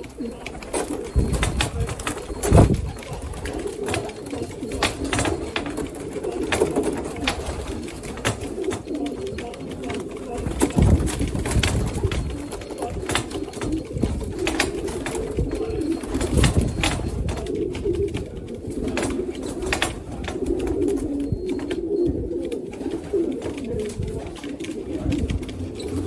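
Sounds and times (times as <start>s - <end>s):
clicks and taps: 0.0s - 25.6s
pigeons cooing: 0.0s - 26.0s.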